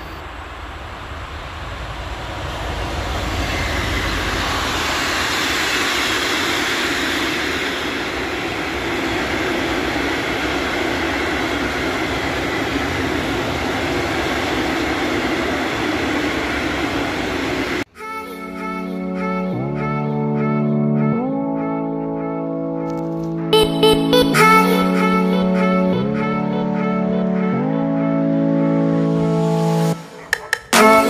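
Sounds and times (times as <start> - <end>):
freight train running past: 0.0 - 20.0.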